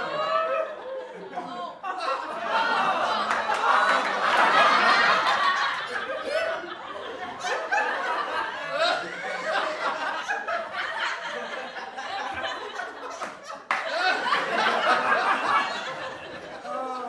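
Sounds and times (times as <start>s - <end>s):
group of people laughing: 0.0s - 17.0s.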